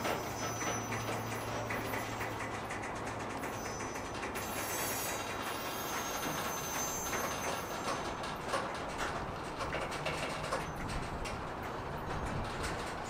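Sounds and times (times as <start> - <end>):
train rumbling past: 0.0 - 13.0
train wheel clicks: 0.0 - 13.0.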